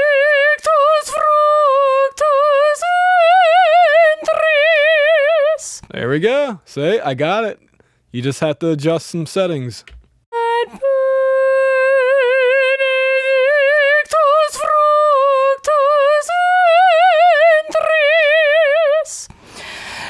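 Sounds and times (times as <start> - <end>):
sharp breaths: 19.3 - 20.0.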